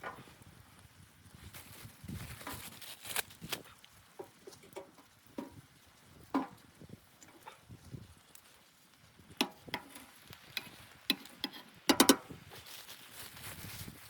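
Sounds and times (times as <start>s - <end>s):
sharp clicks and knocks: 9.4s - 12.3s.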